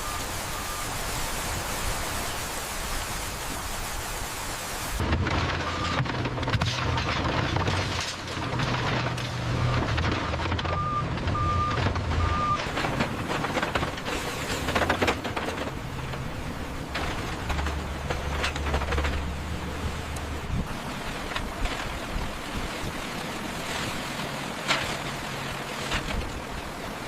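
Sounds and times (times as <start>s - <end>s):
rain-like hiss: 0.0s - 5.9s, 12.6s - 27.0s
crackling and rattling: 5.0s - 20.3s
heavy machinery rumbling: 5.0s - 27.0s.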